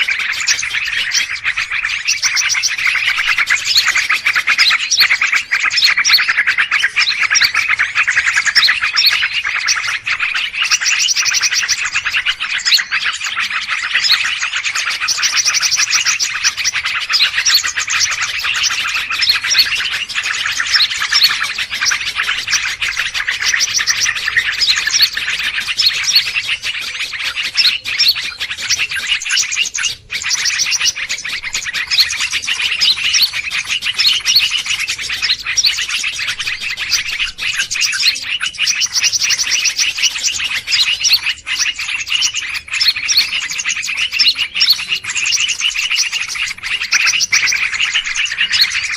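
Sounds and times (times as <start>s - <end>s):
small birds chirping and twittering: 0.0s - 48.9s.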